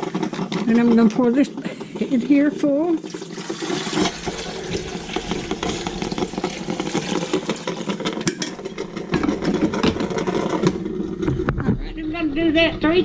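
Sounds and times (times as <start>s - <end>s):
water pouring and splashing: 2.6s - 8.9s.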